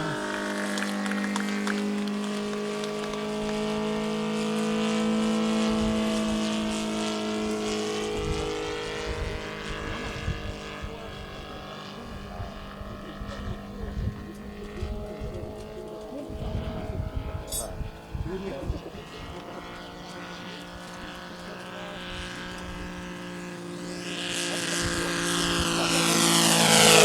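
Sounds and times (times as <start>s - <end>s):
model plane engine drone: 0.0s - 27.0s
wind buffeting microphone: 7.7s - 20.0s, 24.6s - 27.0s.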